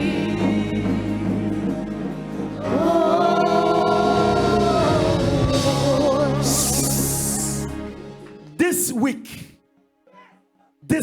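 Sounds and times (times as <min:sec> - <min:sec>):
person singing with vibrato: 0:00.0 - 0:07.8
gospel accompaniment: 0:00.0 - 0:09.8.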